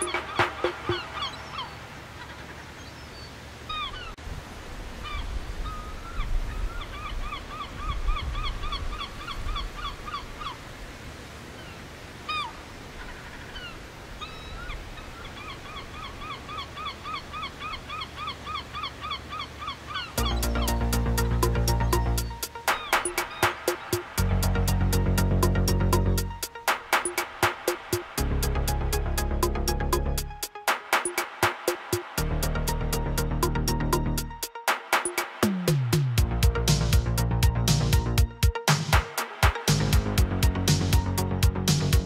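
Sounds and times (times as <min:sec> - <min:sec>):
bird calling: 0:00.0 - 0:04.2, 0:11.6 - 0:24.6.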